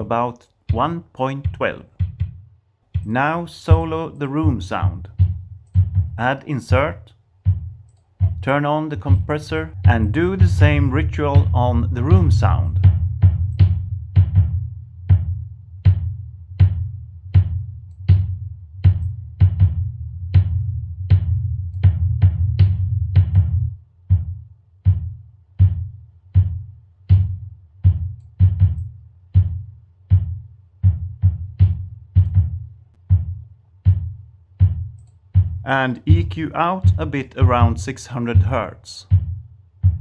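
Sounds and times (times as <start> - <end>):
compressed drum hits: 0.7 - 24.3, 24.9 - 40.0
low boom between drum hits: 9.1 - 18.3.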